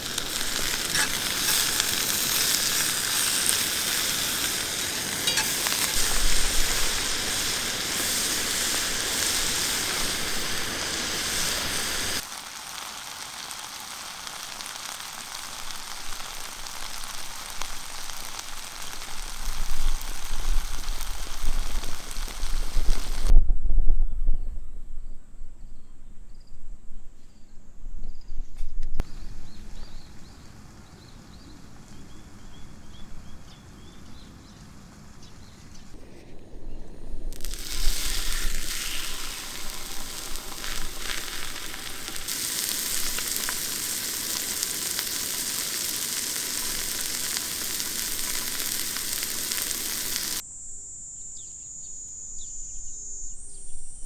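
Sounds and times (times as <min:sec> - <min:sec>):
food sizzling in hot pan: 0:00.0 - 0:23.3, 0:37.2 - 0:50.4
faint bird chirps: 0:50.5 - 0:54.0.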